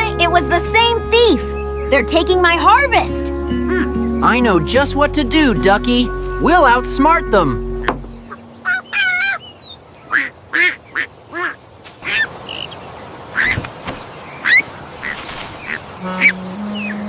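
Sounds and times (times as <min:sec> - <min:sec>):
duck quacking: 0:03.5 - 0:09.4, 0:10.1 - 0:12.3, 0:14.4 - 0:17.0
low thump: 0:07.8 - 0:08.4.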